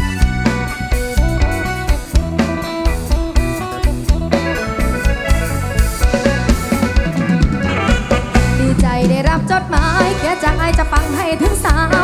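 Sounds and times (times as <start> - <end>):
drum kit beat: 0.0 - 12.0
electric guitar melody: 0.0 - 12.0.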